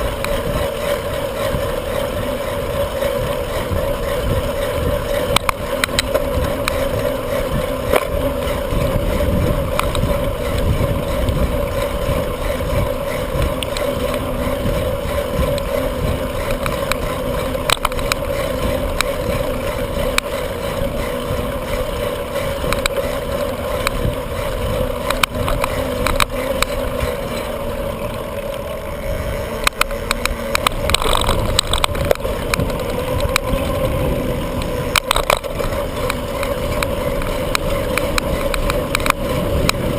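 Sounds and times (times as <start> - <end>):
bicycle tyres on road: 0.0 - 39.9
steady hum: 0.0 - 39.9
wind on microphone: 0.0 - 39.9
clicks and knocks from bumps: 34.6 - 39.8.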